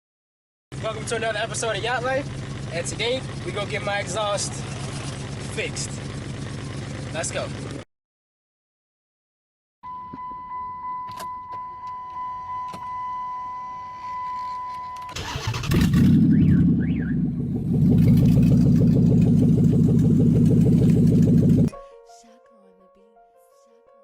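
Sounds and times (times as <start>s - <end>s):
car engine starting and running: 0.7s - 7.8s, 15.0s - 21.7s.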